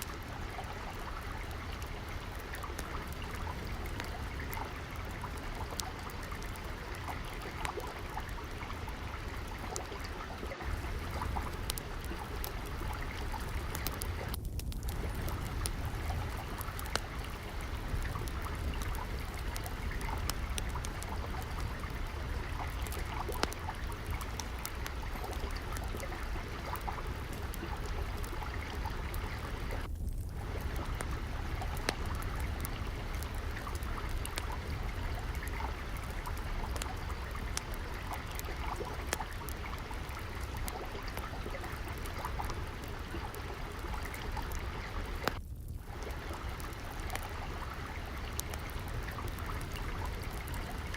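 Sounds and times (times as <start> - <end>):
water trickling: 0.0 - 50.9
wood fire crackling pops: 10.5 - 50.9.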